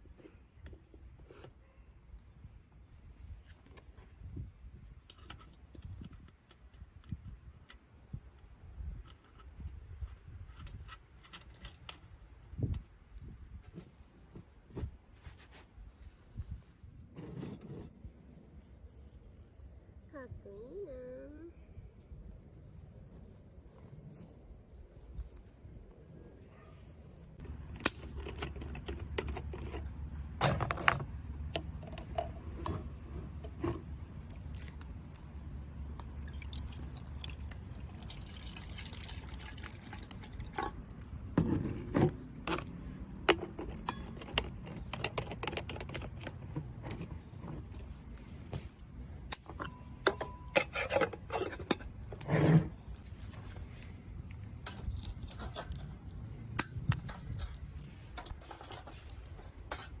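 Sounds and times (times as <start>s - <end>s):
clinks of camp gear and dishes: 27.4s - 33.9s, 41.4s - 47.7s, 49.3s - 53.6s
small liquid sounds: 34.2s - 41.3s.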